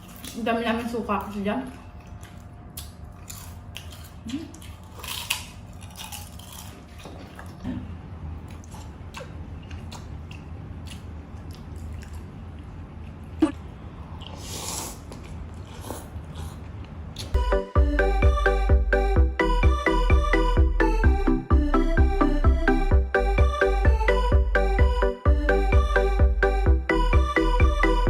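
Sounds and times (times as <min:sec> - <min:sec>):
food crunching: 0:00.0 - 0:07.7, 0:08.4 - 0:13.4
low steady hum: 0:00.0 - 0:28.0
chewing and biting: 0:01.2 - 0:07.7, 0:08.4 - 0:13.4.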